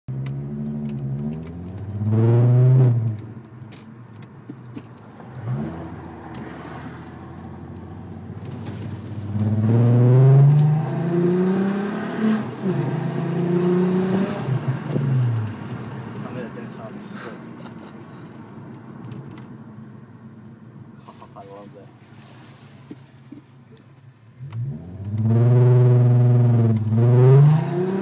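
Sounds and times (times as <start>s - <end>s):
car engine exhaust accelerating: 5.3s - 16.2s, 24.4s - 28.0s.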